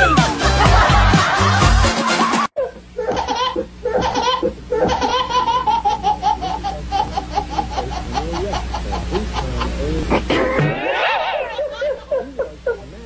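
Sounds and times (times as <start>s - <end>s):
loud music: 0.0s - 2.5s
baby laughing: 2.2s - 12.9s.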